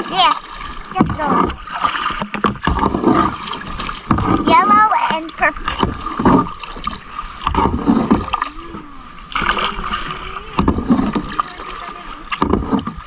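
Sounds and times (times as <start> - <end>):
paddle splashing in water: 0.0 - 13.0
low rumbling noise: 2.7 - 13.0.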